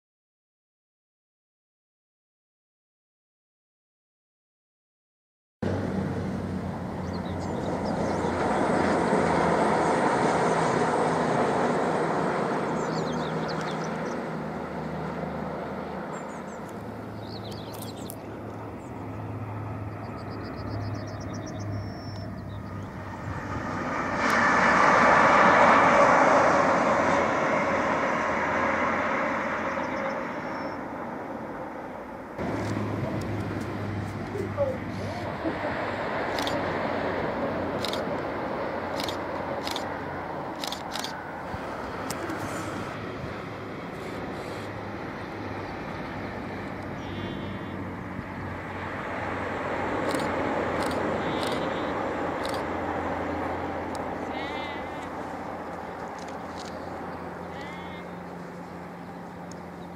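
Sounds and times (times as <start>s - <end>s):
passenger train rushing past: 5.7s - 17.5s, 18.3s - 46.9s, 47.8s - 54.4s
birds chirping: 6.9s - 9.0s, 12.5s - 14.4s, 15.8s - 23.6s, 29.7s - 31.0s, 54.2s - 59.9s.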